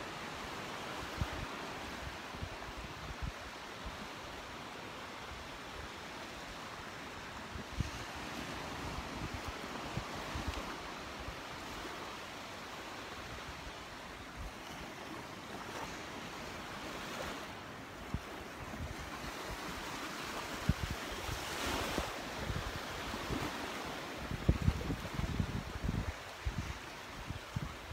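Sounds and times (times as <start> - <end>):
surf washing onto sandy beach: 0.0 - 27.9
wind buffeting microphone: 24.2 - 27.9.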